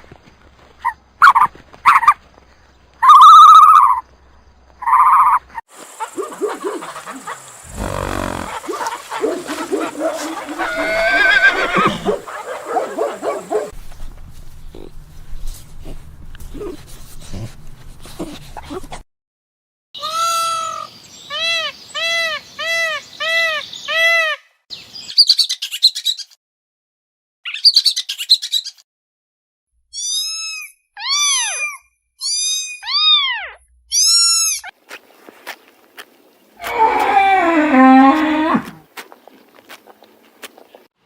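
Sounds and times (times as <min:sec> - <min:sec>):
bird harsh squawks: 0:03.0 - 0:04.0, 0:06.0 - 0:13.7
bird calls: 0:04.8 - 0:13.8.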